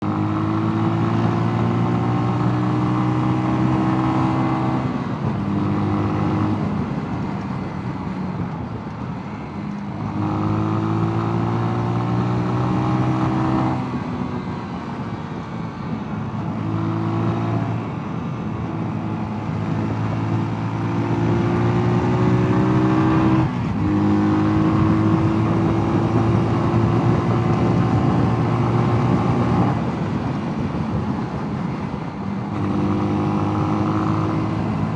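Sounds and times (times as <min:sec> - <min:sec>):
motorcycle engine shifting gears: 0:18.9 - 0:34.9.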